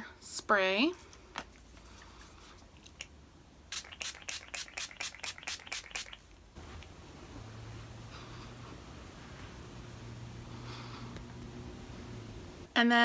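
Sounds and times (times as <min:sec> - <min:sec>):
spray bottle hissing puffs: 0:03.7 - 0:06.2.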